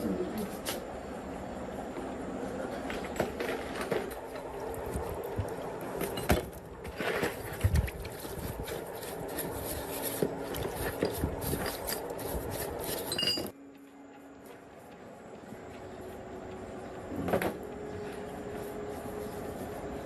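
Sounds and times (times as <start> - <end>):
clinking and knocking on metal: 13.1 - 13.5.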